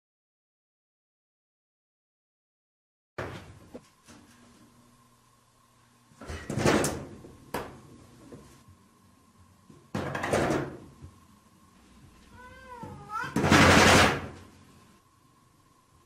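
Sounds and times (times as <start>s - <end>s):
sliding door rattling: 13.4s - 14.4s.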